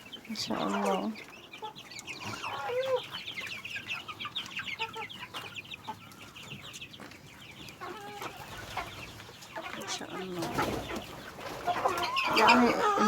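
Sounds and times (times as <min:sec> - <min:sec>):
chicks cheeping: 0:00.0 - 0:13.0.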